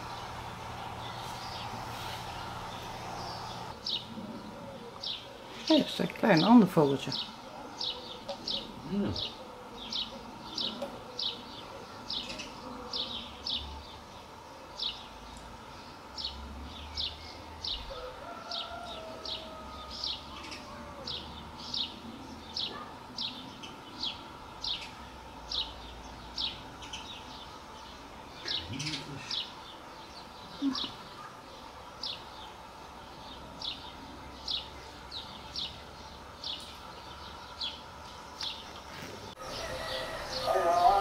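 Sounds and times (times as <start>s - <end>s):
songbird chirping: 0.0s - 41.0s.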